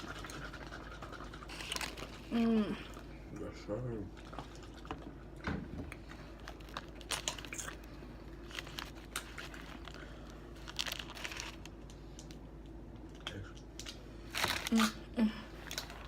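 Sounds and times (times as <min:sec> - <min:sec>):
faint steady hum: 0:00.0 - 0:16.0
paper wrapper crinkling: 0:01.5 - 0:02.3, 0:06.4 - 0:12.0, 0:14.2 - 0:15.0.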